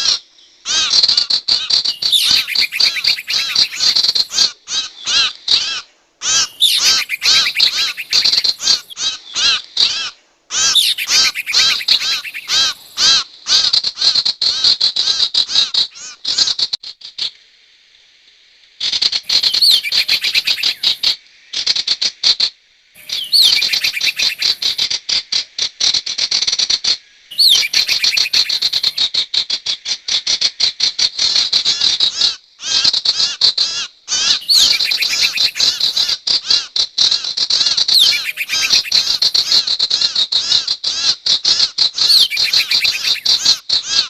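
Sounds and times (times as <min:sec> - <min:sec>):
high-pitched bird chattering: 0:01.8 - 0:04.4, 0:06.2 - 0:09.0, 0:10.5 - 0:13.0, 0:19.3 - 0:21.1, 0:23.0 - 0:24.9, 0:27.3 - 0:29.0, 0:34.2 - 0:36.2, 0:37.9 - 0:39.7, 0:42.0 - 0:43.6.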